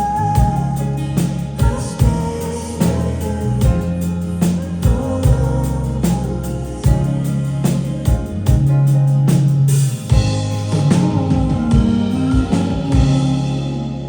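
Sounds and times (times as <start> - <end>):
live band playing: 0.0 - 14.0
drum strikes: 7.8 - 14.0.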